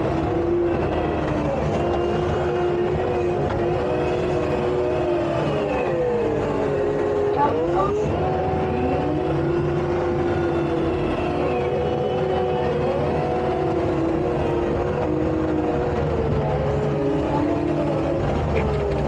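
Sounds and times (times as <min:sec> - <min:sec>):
engine whine: 0:00.0 - 0:19.0
skid steer engine running under load: 0:00.0 - 0:19.0.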